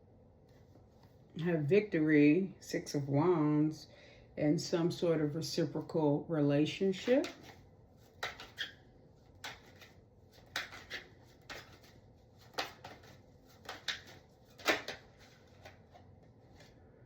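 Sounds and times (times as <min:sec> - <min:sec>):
cards clicking and snapping: 0:07.2 - 0:15.9.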